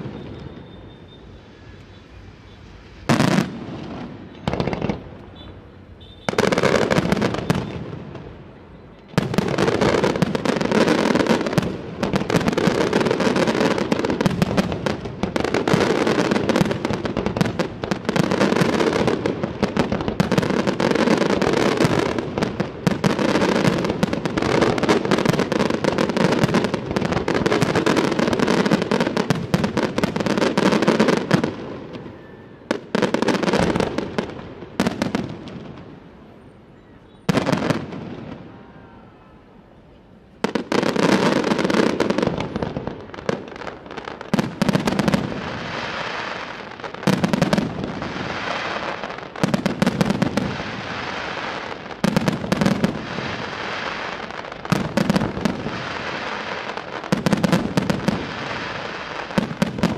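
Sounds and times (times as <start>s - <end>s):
fireworks bangs and crackle: 0.0s - 39.0s, 40.3s - 59.9s.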